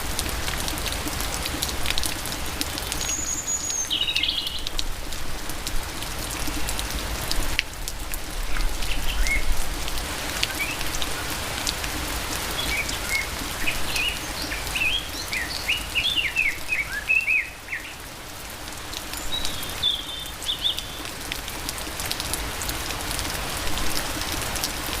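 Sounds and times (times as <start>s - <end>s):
rain falling: 0.0s - 25.0s
raindrops ticking: 0.0s - 25.0s
bird chirping: 3.0s - 4.8s, 12.6s - 18.0s.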